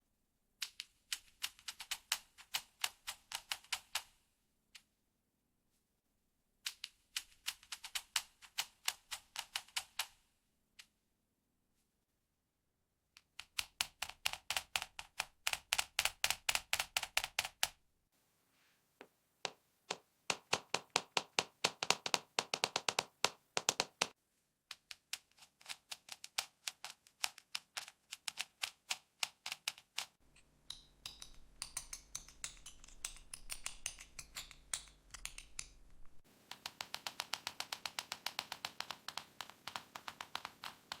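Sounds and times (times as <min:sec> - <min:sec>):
fingernails tapping on plastic: 0:19.5 - 0:24.1.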